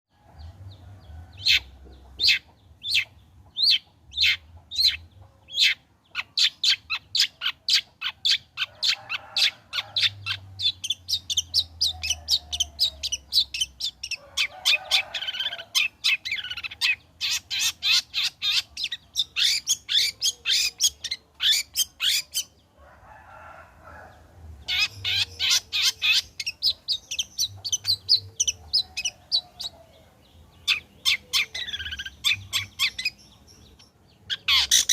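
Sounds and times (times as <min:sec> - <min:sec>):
bird singing sharp repeated calls: 0:01.3 - 0:22.7, 0:24.6 - 0:34.9
bird warbling: 0:24.6 - 0:29.8, 0:30.6 - 0:34.9.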